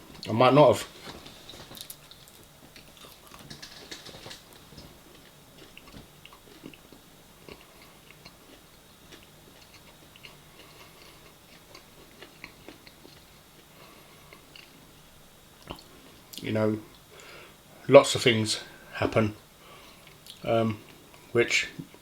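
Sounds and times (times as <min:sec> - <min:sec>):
person chewing food: 0:01.0 - 0:14.9.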